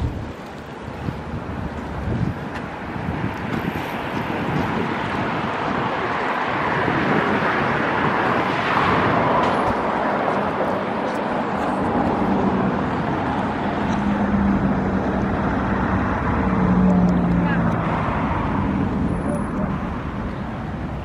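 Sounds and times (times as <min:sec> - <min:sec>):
city traffic noise: 0:00.0 - 0:21.0.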